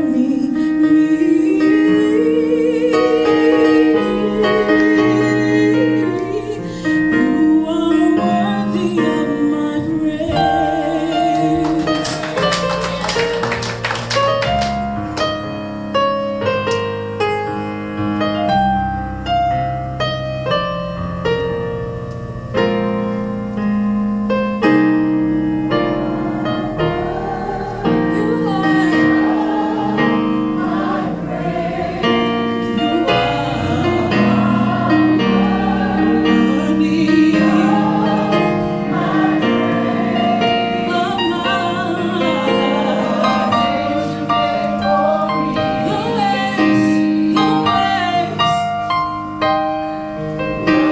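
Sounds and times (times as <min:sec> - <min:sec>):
choir singing: 0:00.0 - 0:13.2, 0:25.9 - 0:48.8, 0:50.6 - 0:50.9
piano accompaniment: 0:00.0 - 0:50.9.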